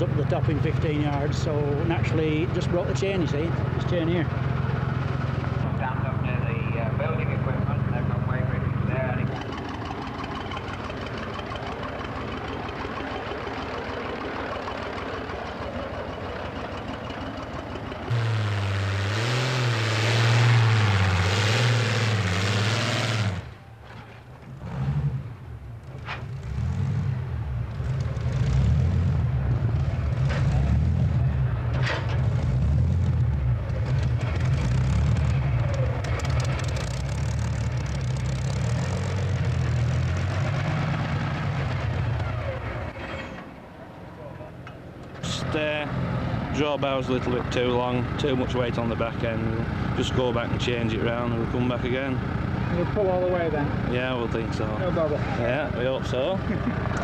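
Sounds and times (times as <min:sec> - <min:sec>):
tractor engine revving: 0:00.0 - 0:57.0.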